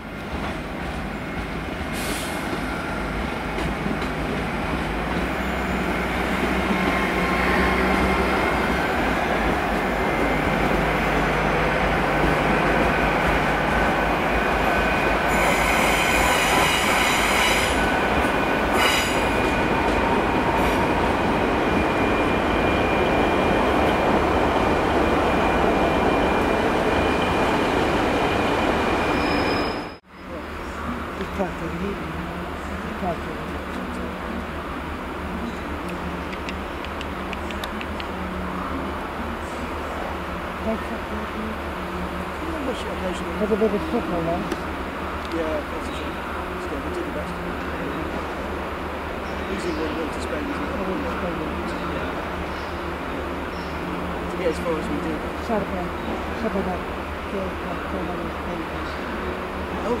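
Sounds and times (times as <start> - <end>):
train wheels rumbling: 0.0 - 30.0
high squeal: 28.3 - 30.0.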